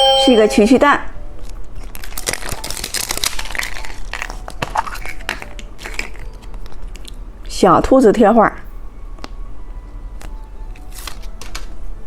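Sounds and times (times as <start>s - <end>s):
candy wrapper crumpling and tearing: 1.4s - 7.2s, 10.7s - 11.7s.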